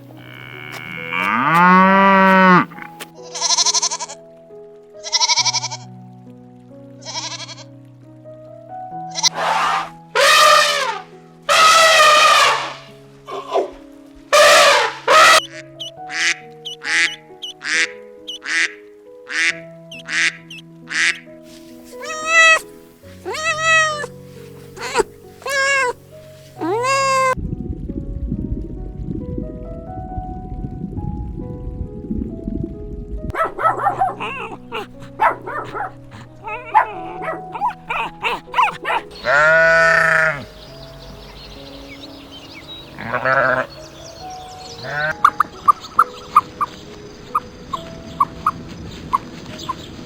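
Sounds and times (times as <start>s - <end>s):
background music: 0.0s - 50.0s
long loud bleat: 0.2s - 4.2s, 5.0s - 5.9s, 7.0s - 7.7s, 9.1s - 12.8s, 22.0s - 22.6s, 23.2s - 24.1s, 24.8s - 26.0s, 26.6s - 27.4s, 36.1s - 40.5s, 43.0s - 43.7s, 44.8s - 45.2s
short animal calls: 9.1s - 13.7s, 21.9s - 24.1s, 24.8s - 26.0s, 26.6s - 27.4s, 33.4s - 40.4s
duck quacking: 9.2s - 12.8s, 14.4s - 21.2s, 22.0s - 22.6s, 23.3s - 24.1s, 24.8s - 26.0s, 33.4s - 40.4s.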